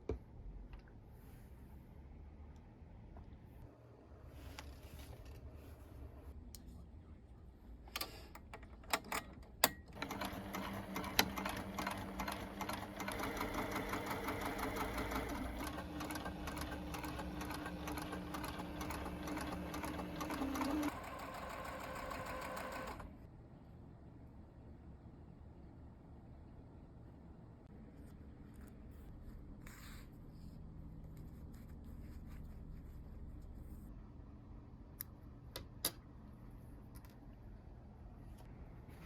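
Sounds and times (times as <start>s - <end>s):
sewing machine stitching: 10.0s - 23.2s.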